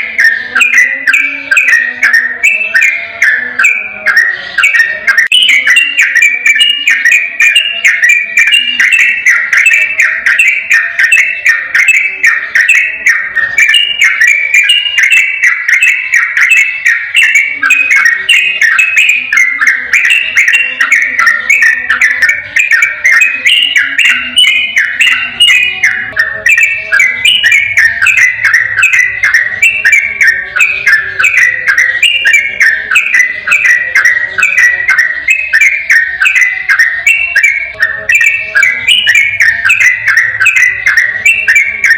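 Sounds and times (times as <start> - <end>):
bulbul singing warbled chatter: 0.0 - 41.9.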